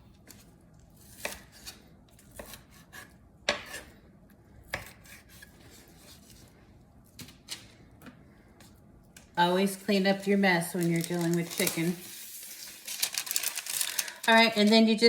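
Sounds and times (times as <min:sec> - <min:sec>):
knife slicing chicken: 0:01.0 - 0:03.9.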